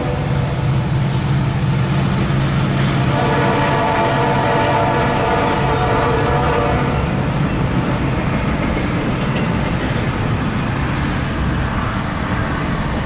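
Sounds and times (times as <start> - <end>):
train wheels rumbling on rail: 0.0 - 13.0
train horn: 3.0 - 7.2.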